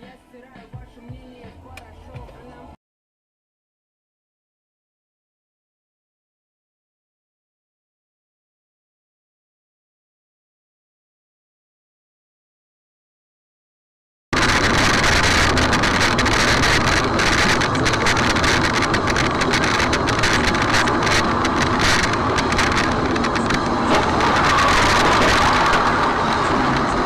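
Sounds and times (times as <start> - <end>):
road and engine noise: 14.4 - 27.0.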